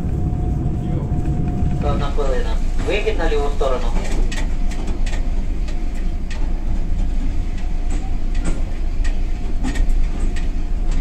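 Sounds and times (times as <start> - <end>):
train low rumble: 0.0 - 11.0
sharp clicks and rattles: 3.8 - 11.0.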